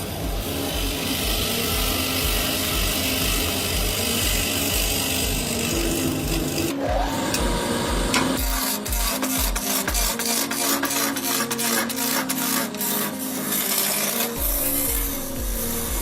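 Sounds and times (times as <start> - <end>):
background music with steady beat: 0.0 - 16.0
power tool hissing on wood: 0.0 - 16.0.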